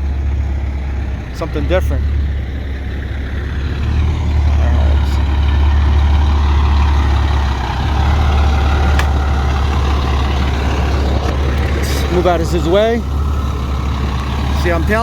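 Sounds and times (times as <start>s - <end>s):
diesel truck engine rumbling: 0.0s - 15.0s.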